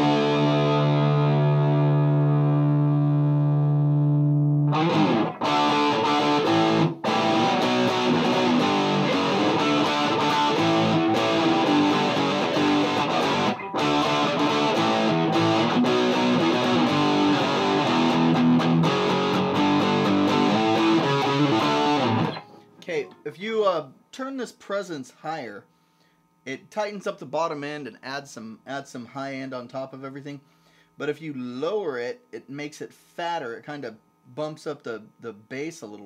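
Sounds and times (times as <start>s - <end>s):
distorted electric guitar riff: 0.0s - 23.3s.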